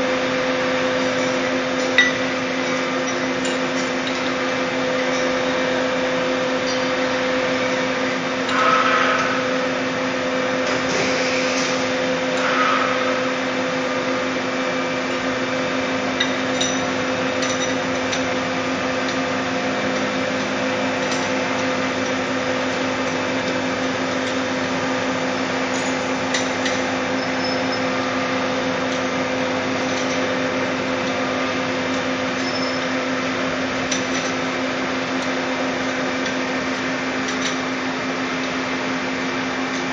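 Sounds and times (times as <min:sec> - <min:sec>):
metallic clanks and clicks: 0:01.0 - 0:04.4, 0:16.2 - 0:18.4, 0:19.0 - 0:24.5, 0:28.9 - 0:30.4, 0:33.9 - 0:34.5.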